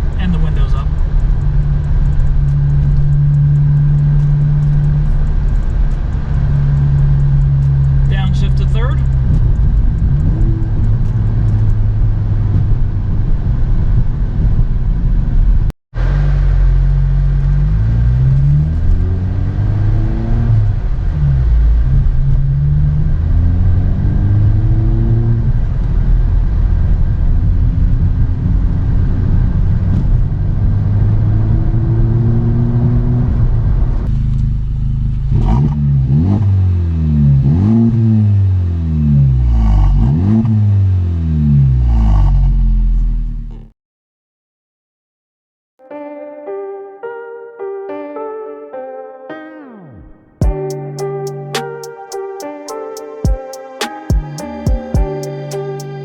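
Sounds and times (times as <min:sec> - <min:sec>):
engine revving: 0:00.0 - 0:13.3, 0:16.0 - 0:43.7
car accelerating: 0:00.0 - 0:15.4, 0:16.0 - 0:43.7
car exhaust cruising: 0:00.0 - 0:43.7.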